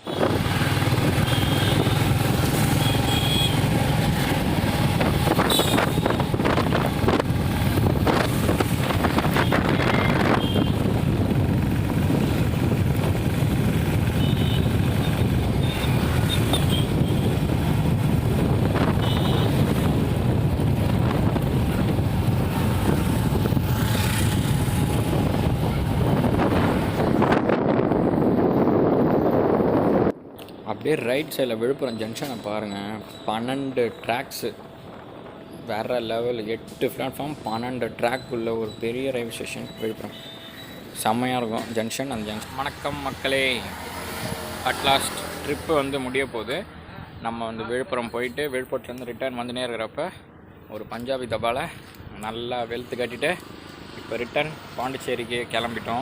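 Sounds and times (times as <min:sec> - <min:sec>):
wind noise on microphone: 0:00.0 - 0:02.8, 0:03.6 - 0:30.6, 0:34.5 - 0:35.7.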